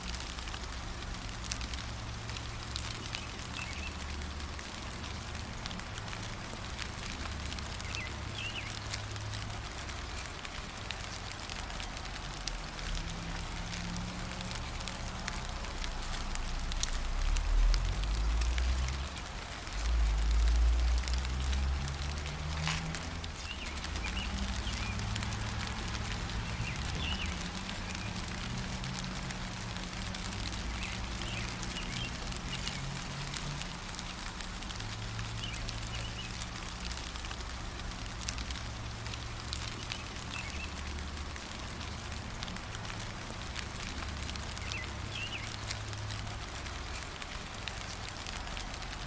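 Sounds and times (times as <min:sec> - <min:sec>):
light rain patter: 0:00.0 - 0:49.0
bird chirps: 0:44.6 - 0:45.6.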